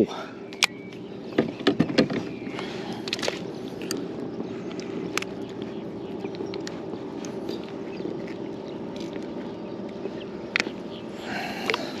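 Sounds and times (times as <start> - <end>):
steady low hum: 0.0 - 12.0
knocks and clicks of fish handling: 0.6 - 4.0.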